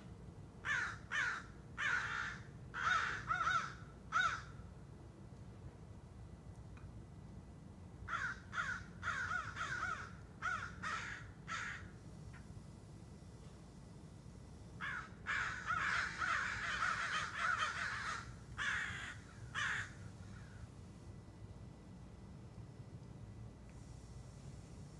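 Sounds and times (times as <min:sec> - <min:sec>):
birds chattering: 0:14.8 - 0:20.6.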